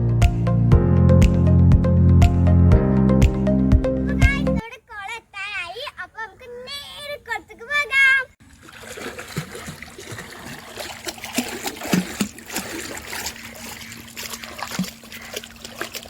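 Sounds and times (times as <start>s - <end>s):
water trickling and splashing: 7.5s - 16.0s
water plops and gurgles: 8.4s - 16.0s.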